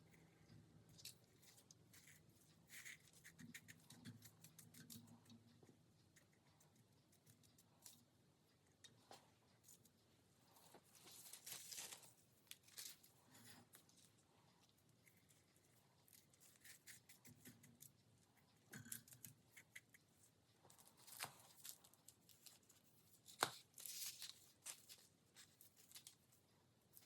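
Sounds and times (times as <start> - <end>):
foil rustling and crinkling: 11.0 - 12.1.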